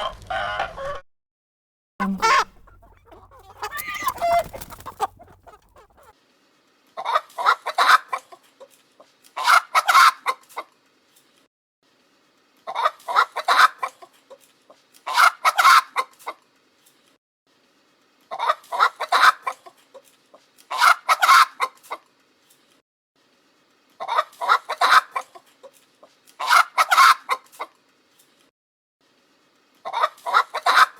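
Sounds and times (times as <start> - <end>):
chickens clucking: 2.0 - 6.2.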